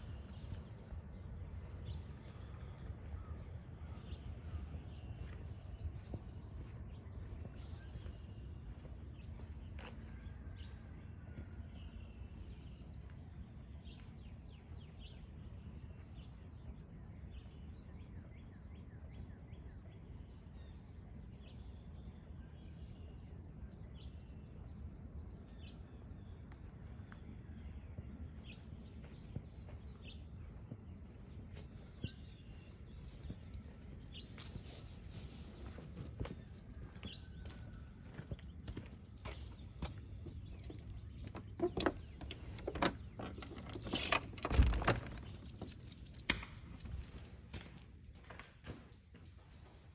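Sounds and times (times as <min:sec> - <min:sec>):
footsteps crunching on trail: 0:00.0 - 0:15.2, 0:26.8 - 0:42.1.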